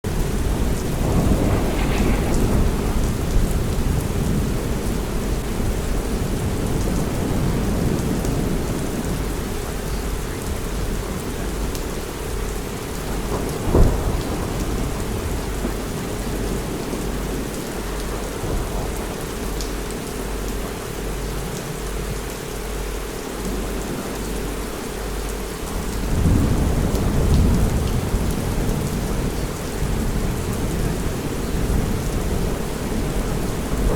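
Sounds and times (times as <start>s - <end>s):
heavy rain: 0.0s - 33.9s
low thunder rumble: 0.0s - 33.9s
thunder crack: 0.1s - 9.2s, 12.2s - 20.9s, 25.7s - 33.9s.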